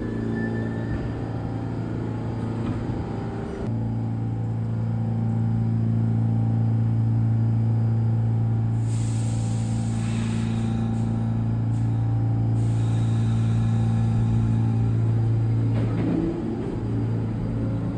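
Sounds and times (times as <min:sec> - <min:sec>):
hiss: 0:08.7 - 0:12.0, 0:12.6 - 0:15.4.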